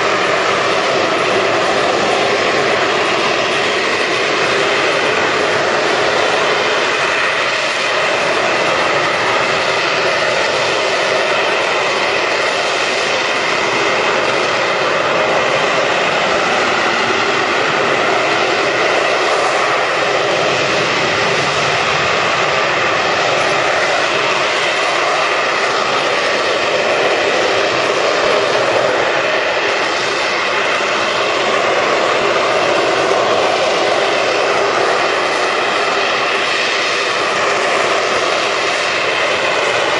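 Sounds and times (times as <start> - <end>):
jet engine roaring: 0.0 - 39.9.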